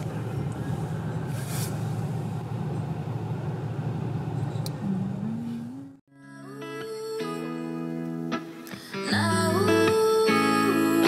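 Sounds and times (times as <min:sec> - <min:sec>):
car idling: 0:00.0 - 0:06.0
background guitar music: 0:05.2 - 0:11.0.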